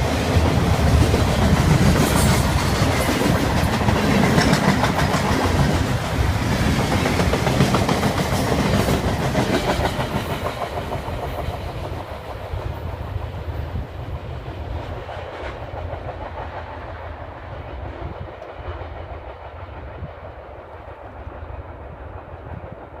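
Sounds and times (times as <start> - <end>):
train cars clattering over rails: 0.0 - 12.5.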